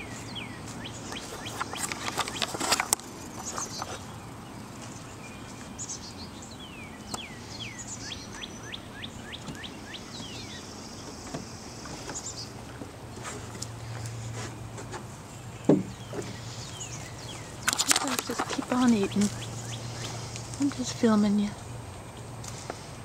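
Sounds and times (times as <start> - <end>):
songbird singing: 0.0 - 23.0
crackling clicks: 1.1 - 4.0.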